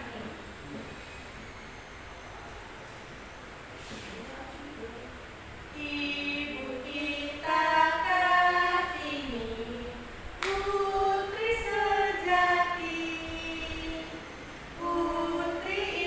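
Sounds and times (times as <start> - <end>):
voices singing without instruments: 5.6 - 16.0.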